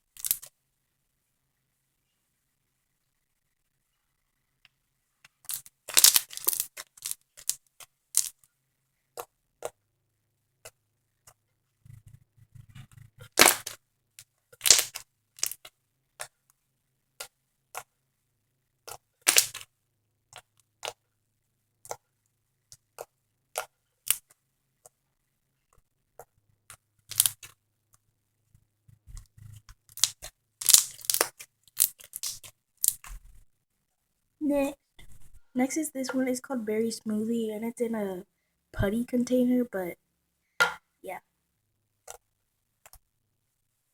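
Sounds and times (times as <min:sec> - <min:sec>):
foam slime crackling: 0:05.9 - 0:07.0, 0:13.2 - 0:13.8, 0:14.6 - 0:15.6, 0:30.0 - 0:33.0.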